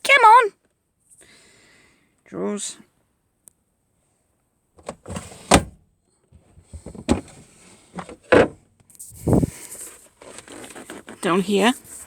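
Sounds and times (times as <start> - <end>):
drawers knocking shut: 4.8 - 5.8, 6.7 - 7.4
drawers sliding: 4.8 - 5.8, 6.7 - 8.5.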